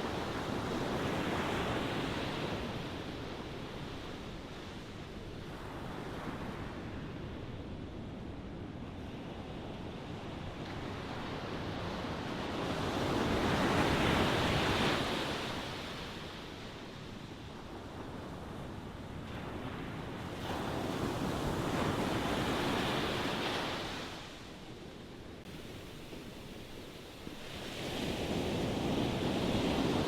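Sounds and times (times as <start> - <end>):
ocean waves breaking on shore: 9.0 - 30.0.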